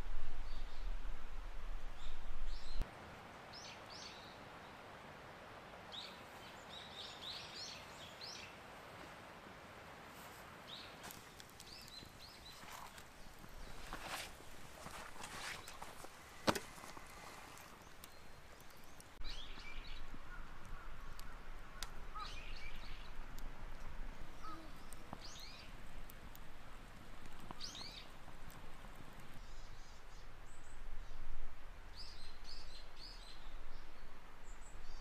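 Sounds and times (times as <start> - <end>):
wood fire crackling: 0.0 - 2.9, 8.7 - 35.0
birds chirping: 10.7 - 25.9, 27.2 - 31.2.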